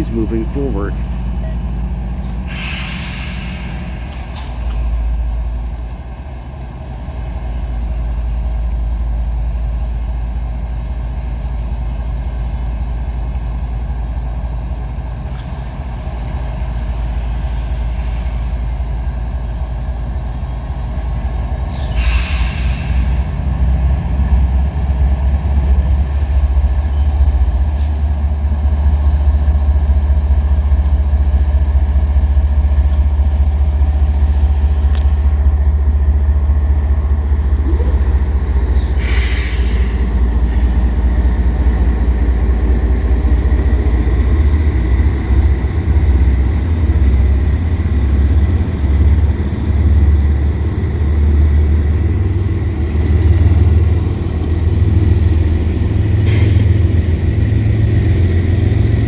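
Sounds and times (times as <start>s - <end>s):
diesel locomotives rumbling: 0.0s - 59.0s
short hiss of air: 2.5s - 4.6s.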